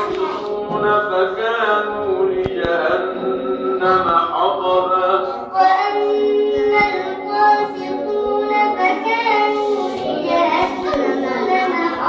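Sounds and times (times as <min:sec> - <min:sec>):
children chanting melodically: 0:00.0 - 0:00.9, 0:05.2 - 0:12.0.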